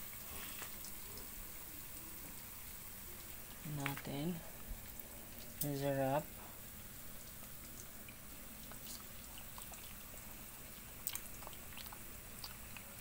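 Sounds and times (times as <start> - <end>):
chewing crispy fries: 7.2 - 13.0.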